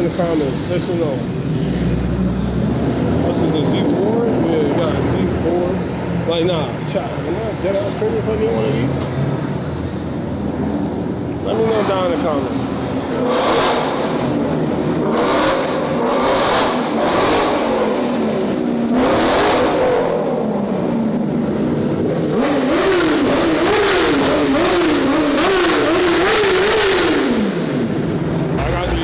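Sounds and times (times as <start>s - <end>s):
car engine revving: 9.1s - 29.0s.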